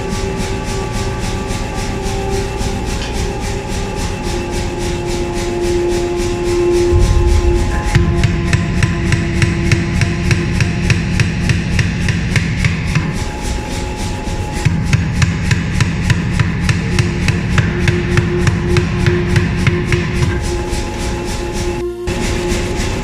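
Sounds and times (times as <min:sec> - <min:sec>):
low rumble: 0:06.8 - 0:10.9.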